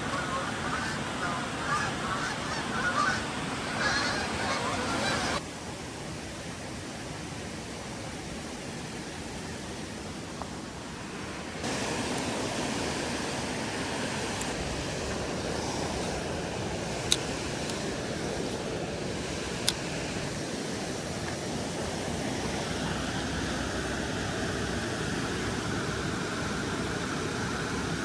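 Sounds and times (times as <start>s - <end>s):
loud calls: 0.0s - 5.4s
creek flowing: 0.0s - 5.5s, 9.2s - 28.0s.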